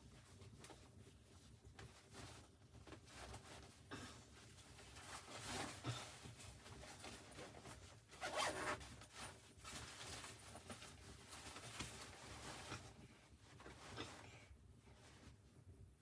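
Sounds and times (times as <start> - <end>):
zipper being pulled: 8.2 - 8.8.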